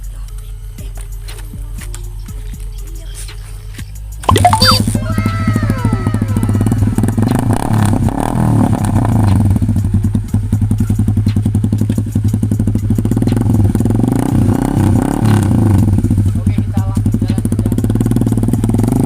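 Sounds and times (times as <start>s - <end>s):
motorcycle engine at low revs: 6.4s - 19.0s.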